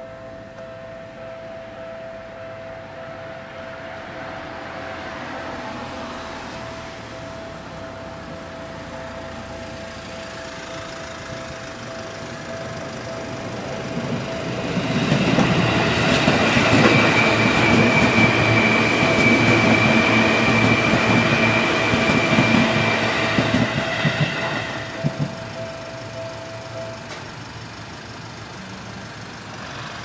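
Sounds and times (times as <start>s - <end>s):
level crossing alarm tone: 0.0s - 27.8s
electric train rumble: 0.0s - 30.0s
high steady whine: 6.6s - 29.5s
wheels clacking over rail joints: 10.3s - 27.4s.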